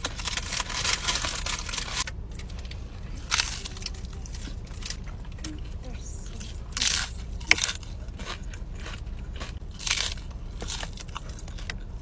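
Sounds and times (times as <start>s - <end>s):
person chewing crunchy food: 3.1s - 12.0s.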